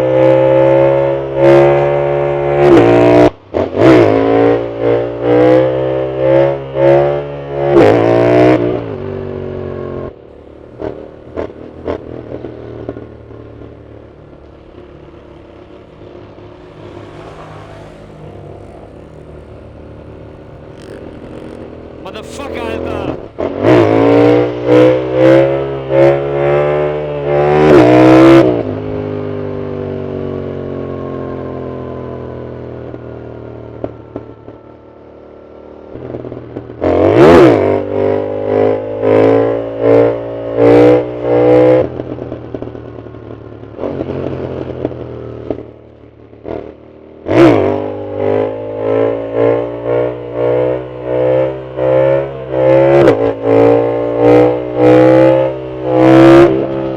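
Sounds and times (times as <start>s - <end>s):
motorcycle engine revving: 10.2s - 22.2s, 47.2s - 56.9s
exhaust crack: 10.2s - 25.3s.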